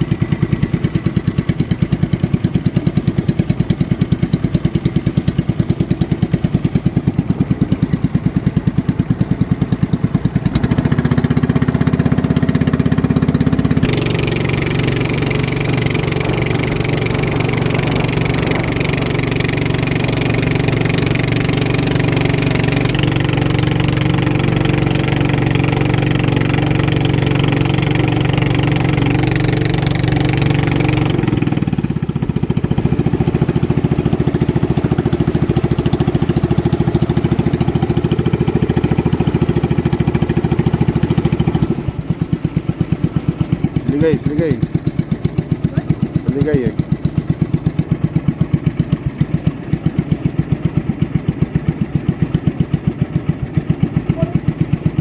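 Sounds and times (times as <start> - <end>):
racing boat motors running: 10.3 - 48.6.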